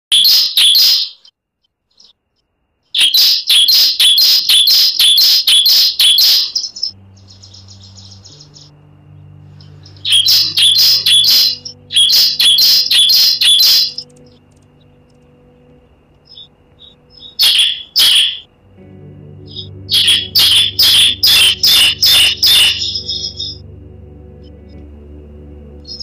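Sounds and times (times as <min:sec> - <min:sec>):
bird sharp rapid chirps: 0:00.1 - 0:08.8, 0:09.6 - 0:15.4, 0:16.2 - 0:18.5, 0:19.5 - 0:23.6
faint low steady tone: 0:06.9 - 0:26.0.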